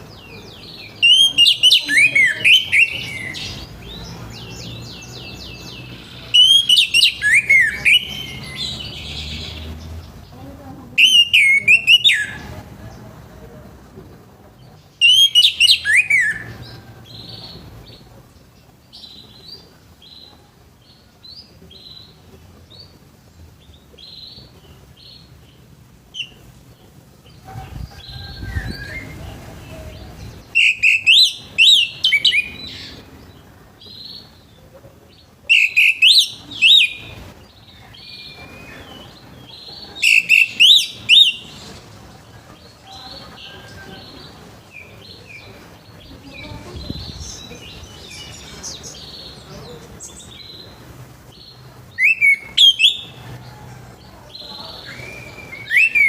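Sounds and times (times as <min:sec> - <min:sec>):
thrush singing whistled phrases: 0:01.0 - 0:03.5, 0:06.3 - 0:09.2, 0:11.0 - 0:12.4, 0:15.0 - 0:16.6, 0:30.5 - 0:32.6, 0:35.5 - 0:37.2, 0:40.0 - 0:41.5, 0:52.0 - 0:53.2, 0:54.8 - 0:56.0.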